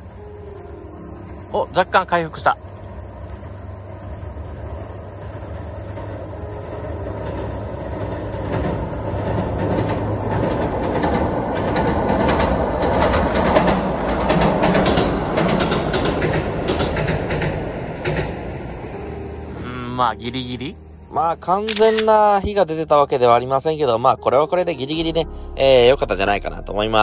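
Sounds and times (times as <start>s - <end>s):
train rumble on bridge: 0.0s - 21.5s
wheels clattering over rail joints: 4.6s - 19.0s.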